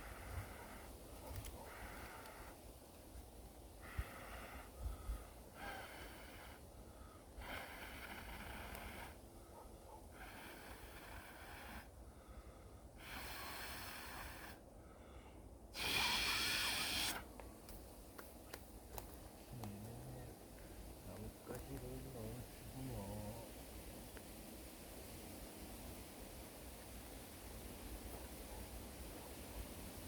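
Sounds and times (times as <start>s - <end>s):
person blowing on fire: 3.8s - 6.6s, 7.4s - 9.2s, 13.0s - 14.6s, 15.7s - 17.3s.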